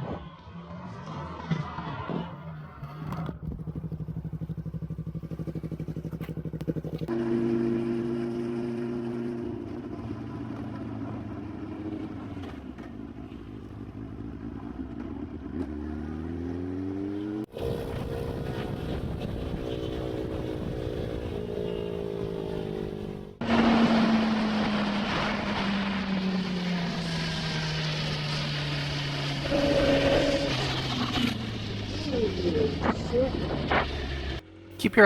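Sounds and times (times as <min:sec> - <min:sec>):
motorcycle engine running: 0:02.6 - 0:24.6.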